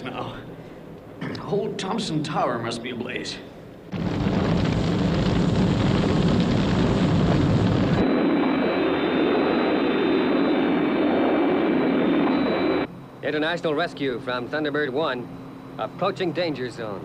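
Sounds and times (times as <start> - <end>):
jet engines whining in flight: 3.7 - 17.0
loud dense roar: 3.9 - 12.1.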